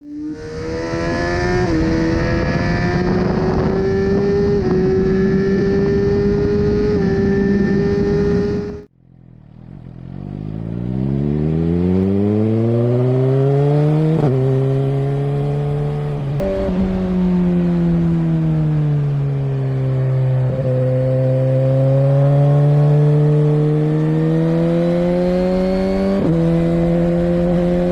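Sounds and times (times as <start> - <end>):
motorcycle engine at high revs: 0.0 - 27.9
loud wind rush: 0.1 - 8.9, 15.4 - 20.7.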